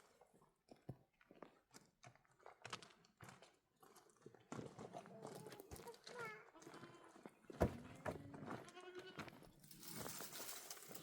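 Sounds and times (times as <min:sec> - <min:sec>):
sheep hooves crunching on stones: 0:07.2 - 0:11.0.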